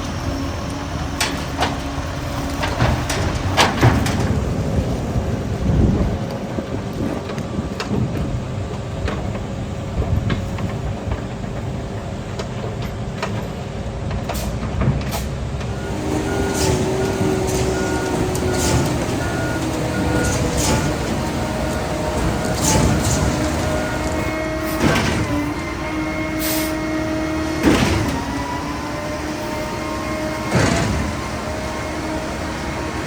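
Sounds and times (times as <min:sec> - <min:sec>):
truck engine rumbling: 0:00.0 - 0:33.0
reversing beeper: 0:15.7 - 0:33.0.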